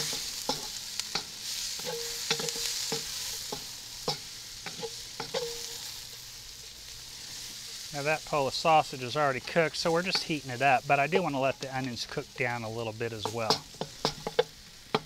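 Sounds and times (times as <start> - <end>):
wooden spoon scraping a pan: 0.0 - 6.2, 9.0 - 10.8, 13.2 - 15.0
food sizzling in a wok: 0.0 - 15.0.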